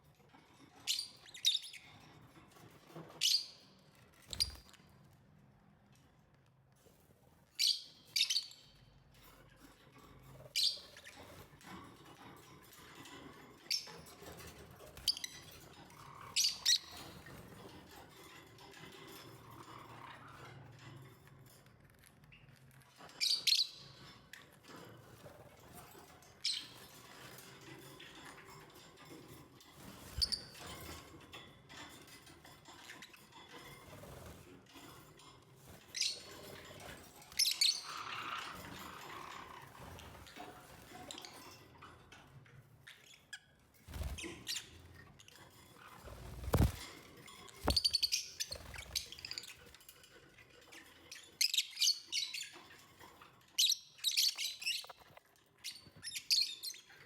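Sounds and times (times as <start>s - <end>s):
lovebirds chirping: 46.1s - 49.8s.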